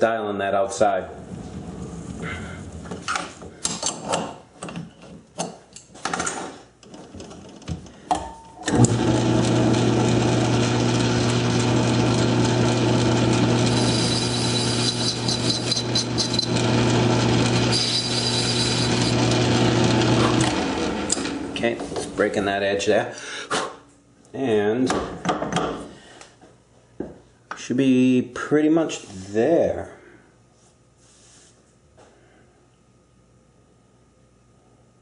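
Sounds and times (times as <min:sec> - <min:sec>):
lathe motor humming: 0:08.7 - 0:22.2
thin high tone of cutting tool: 0:13.5 - 0:20.4.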